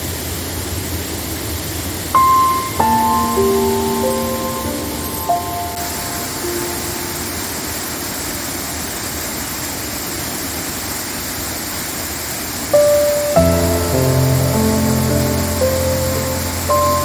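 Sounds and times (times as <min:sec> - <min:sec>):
musical note: 0:02.2 - 0:08.4, 0:12.8 - 0:17.0.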